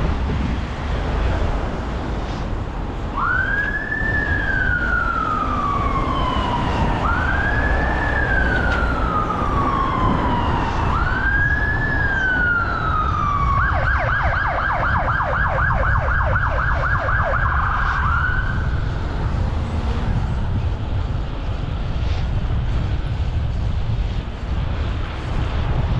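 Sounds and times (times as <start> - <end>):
wind and road noise rumble: 0.0 - 25.9
emergency siren wailing and yelping: 3.1 - 19.8.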